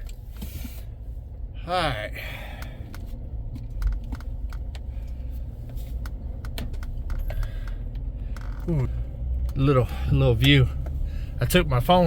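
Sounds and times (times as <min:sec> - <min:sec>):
truck engine rumble from cab: 0:00.0 - 0:12.0
light clicks and rattles: 0:02.5 - 0:11.1.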